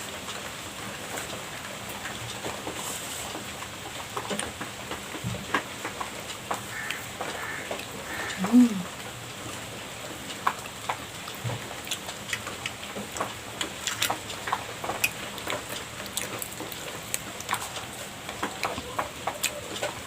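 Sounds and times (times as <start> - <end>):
person chewing pastry: 10.2 - 20.0.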